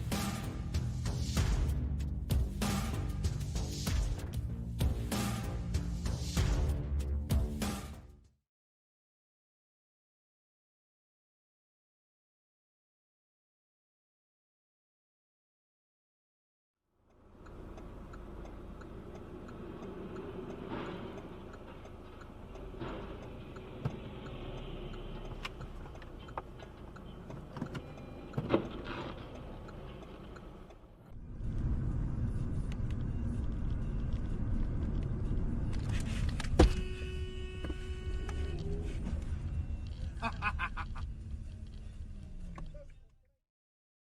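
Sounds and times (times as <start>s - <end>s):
car interior road noise: 17.1s - 43.2s
car horn: 36.5s - 39.8s.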